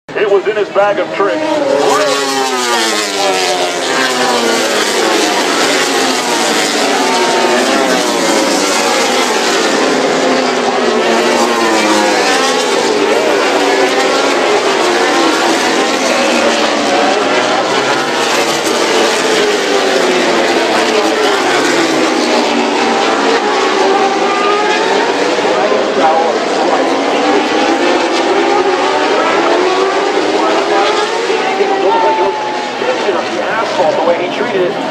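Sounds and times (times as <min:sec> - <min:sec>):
racing motorcycles accelerating: 0:00.1 - 0:34.9.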